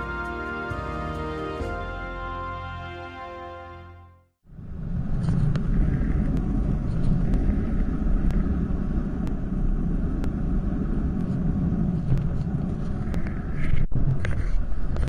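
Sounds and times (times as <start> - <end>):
wind and road noise: 4.5 - 15.0.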